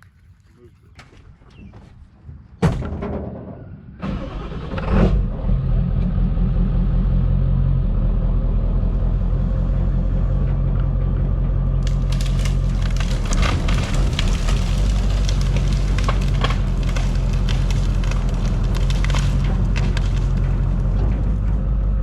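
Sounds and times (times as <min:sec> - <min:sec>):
diesel engine starting and idling: 0:04.0 - 0:12.1.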